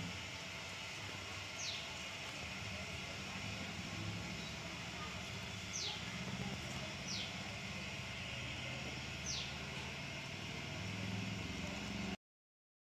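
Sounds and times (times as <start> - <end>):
steady low hum: 0.0 - 12.2
small bird chirps: 1.6 - 2.0, 5.7 - 6.1, 7.0 - 7.4, 9.2 - 9.6.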